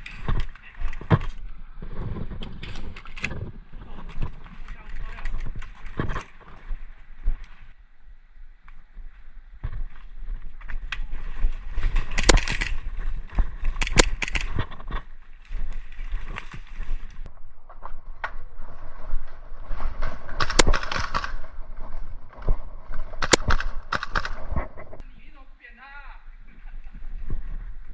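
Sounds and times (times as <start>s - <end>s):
footsteps: 0.0s - 7.8s, 8.6s - 25.3s
sharp cracks: 12.0s - 13.0s, 13.6s - 15.1s, 19.8s - 25.0s.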